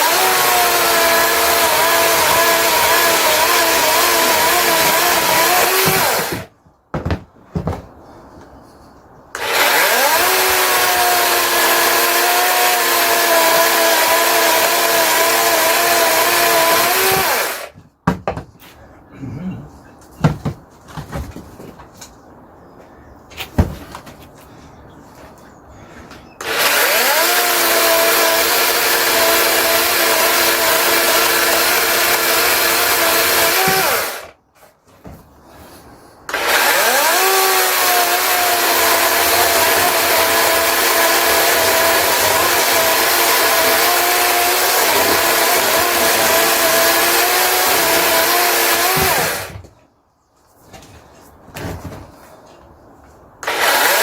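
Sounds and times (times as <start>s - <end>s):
cordless chainsaw cutting logs: 0.0s - 6.5s, 9.4s - 17.7s, 26.4s - 34.4s, 36.3s - 49.6s, 53.4s - 54.0s.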